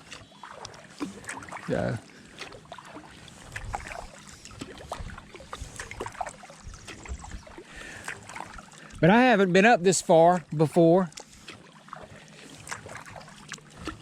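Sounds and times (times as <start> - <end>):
water dripping: 0.0 - 3.0
kayak paddle splashing: 0.0 - 14.0.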